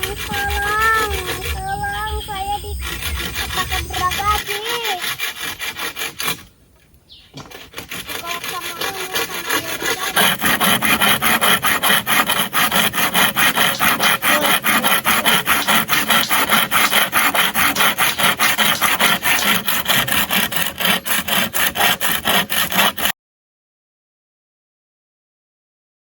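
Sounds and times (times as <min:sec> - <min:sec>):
hand saw cutting wood: 0:00.0 - 0:06.6, 0:07.2 - 0:23.2.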